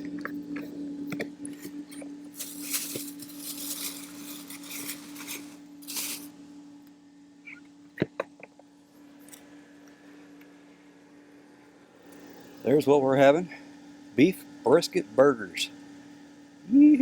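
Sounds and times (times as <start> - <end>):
steady low hum: 0.0 - 17.0
cooking gear clinking: 2.4 - 6.3
rustling: 2.4 - 6.3.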